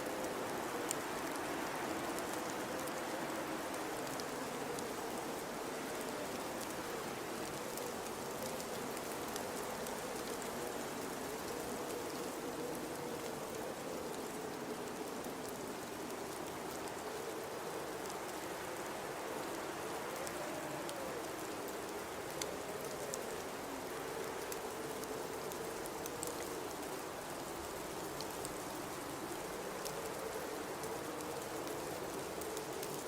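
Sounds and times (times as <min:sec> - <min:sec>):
hiss of wind-driven snow: 0:00.0 - 0:33.0
faint ticks: 0:07.5 - 0:33.0.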